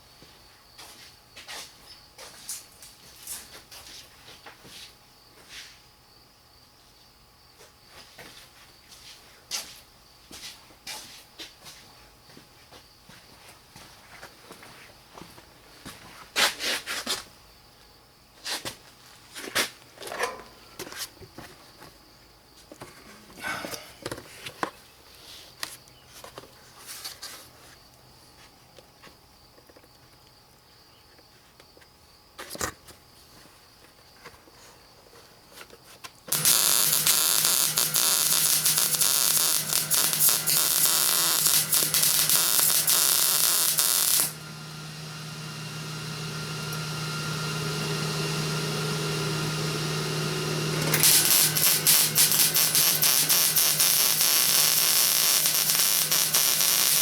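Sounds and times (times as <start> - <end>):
welding arc crackling: 36.3 - 46.9, 50.7 - 57.0
steady hum: 36.3 - 57.0.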